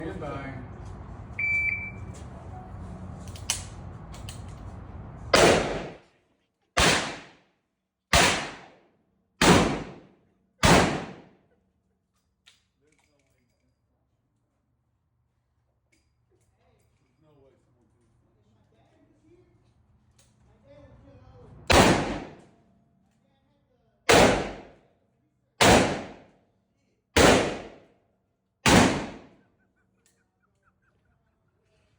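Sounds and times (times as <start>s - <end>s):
revolver shots echoing: 5.3s - 6.0s, 21.7s - 22.4s, 24.1s - 24.7s, 27.2s - 27.8s, 28.7s - 29.3s
revolver shots echoing indoors: 5.3s - 6.1s, 6.8s - 7.4s, 8.2s - 8.8s, 9.4s - 11.3s, 21.6s - 22.5s, 24.1s - 24.8s, 25.6s - 26.4s, 27.2s - 27.9s, 28.7s - 29.4s.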